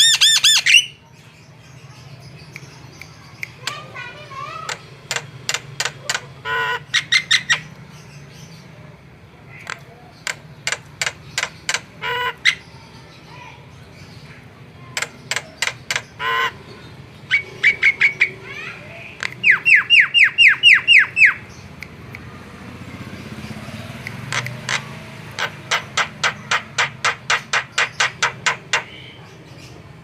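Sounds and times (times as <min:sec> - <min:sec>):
myna clicking calls: 0:02.4 - 0:07.8, 0:09.5 - 0:12.7, 0:14.8 - 0:16.6, 0:19.0 - 0:22.4, 0:23.9 - 0:29.2
myna harsh squawk: 0:16.2 - 0:16.6.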